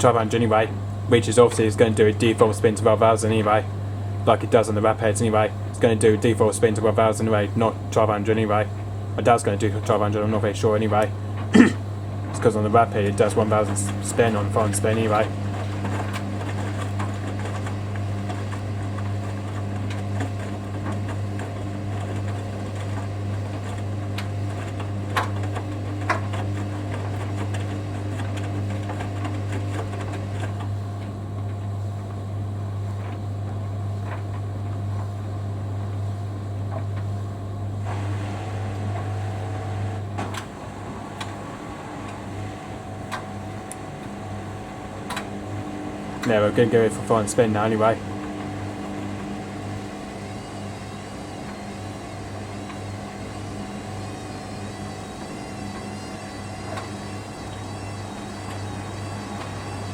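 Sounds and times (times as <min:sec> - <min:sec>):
washing machine humming: 0:00.0 - 0:59.9.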